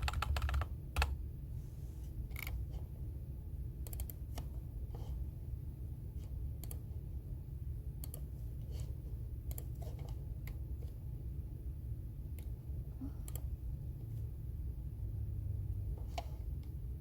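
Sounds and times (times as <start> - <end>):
keyboard typing: 0.0 - 1.2, 3.8 - 4.5.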